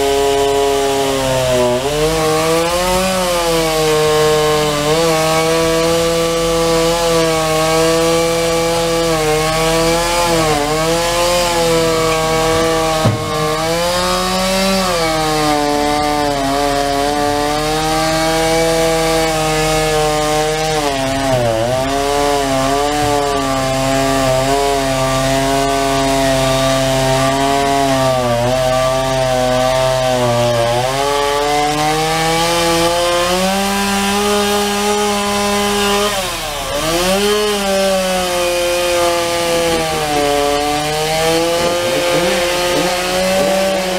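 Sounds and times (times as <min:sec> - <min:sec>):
chainsaw cutting tree: 0:00.0 - 0:43.9
sharp knock: 0:13.0 - 0:14.1.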